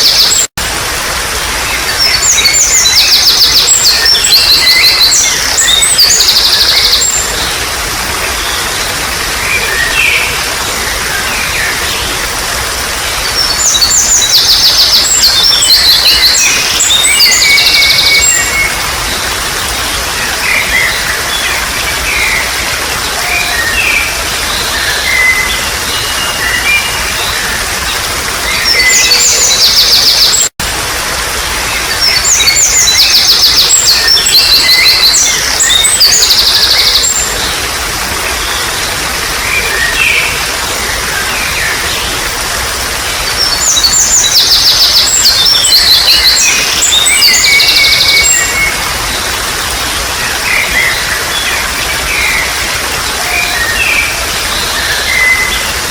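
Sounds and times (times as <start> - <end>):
babbling water: 0.0 - 55.9
birds trilling and chirping: 31.4 - 55.9.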